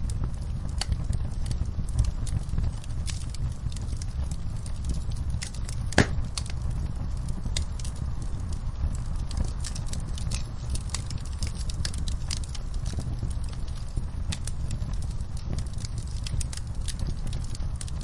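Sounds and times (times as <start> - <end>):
wood fire crackling: 0.0 - 18.0
loud pop: 5.9 - 6.3.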